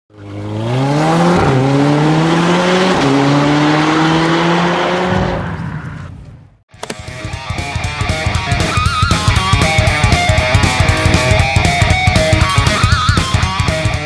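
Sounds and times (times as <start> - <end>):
car engine accelerating hard: 0.1 - 6.0.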